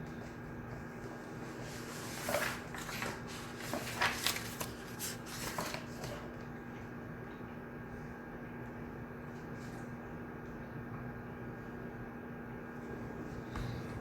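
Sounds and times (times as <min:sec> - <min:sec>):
paper rustling and small clicks: 0:01.0 - 0:06.5.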